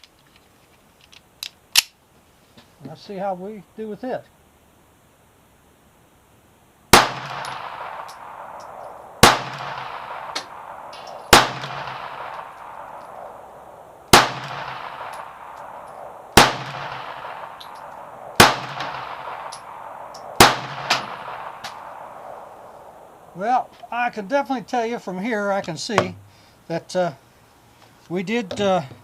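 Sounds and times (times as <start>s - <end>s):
pistol shots with ringing echo: 6.9s - 23.3s.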